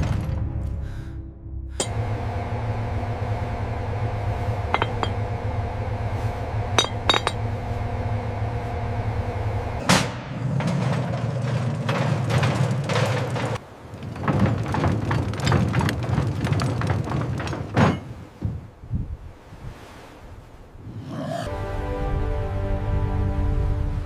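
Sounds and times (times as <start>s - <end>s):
low machine hum: 1.7s - 13.6s
clattering: 4.7s - 5.2s, 6.8s - 7.5s, 9.8s - 18.3s.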